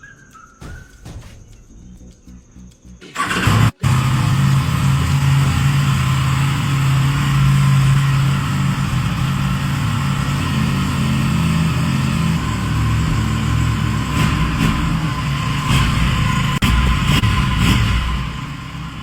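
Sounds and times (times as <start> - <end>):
motorcycle engine starting and idling: 2.8 - 19.0.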